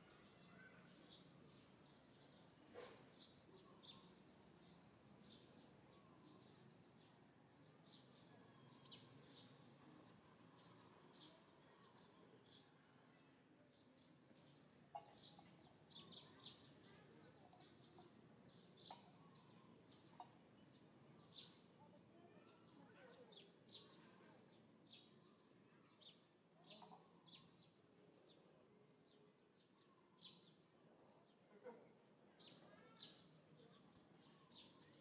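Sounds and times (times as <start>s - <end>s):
small birds chirping: 13.8s - 31.2s, 32.4s - 35.0s.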